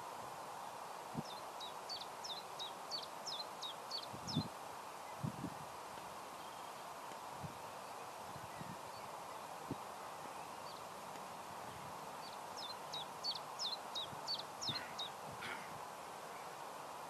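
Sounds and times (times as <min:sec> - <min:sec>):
faint steady hiss: 0:00.0 - 0:17.0
small bird chirping: 0:01.2 - 0:04.5, 0:11.6 - 0:15.7.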